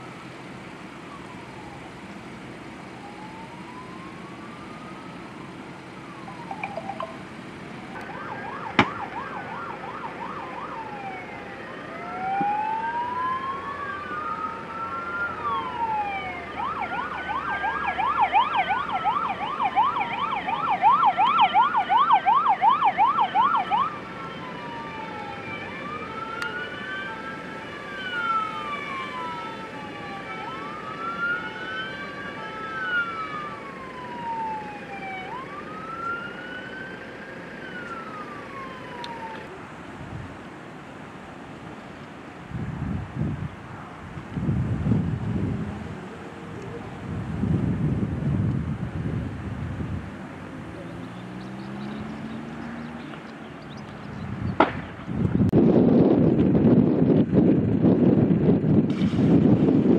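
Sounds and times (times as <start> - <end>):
rapid siren yelp: 1.0 - 2.1, 2.8 - 39.5
siren wail: 1.0 - 2.1, 2.8 - 39.6
short steady siren tones: 2.9 - 7.4, 8.0 - 39.4.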